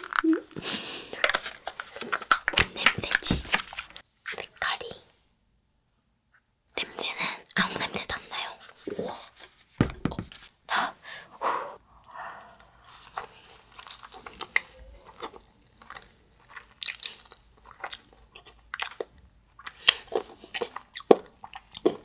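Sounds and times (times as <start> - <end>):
chewing with mouth clicks: 12.6 - 22.0.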